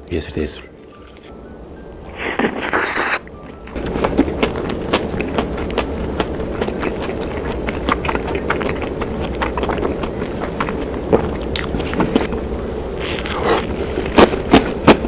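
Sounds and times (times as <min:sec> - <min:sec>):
close chewing with wet mouth clicks: 0:03.5 - 0:12.3.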